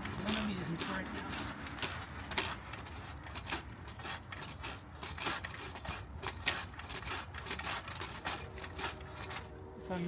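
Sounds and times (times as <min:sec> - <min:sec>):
saw rasping through branch: 0:00.0 - 0:10.0.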